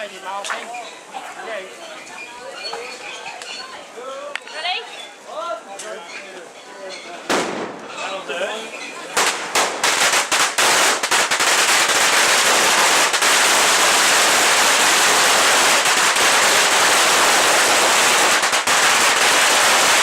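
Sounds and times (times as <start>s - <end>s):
firecrackers going off: 7.2s - 8.0s, 9.1s - 20.0s.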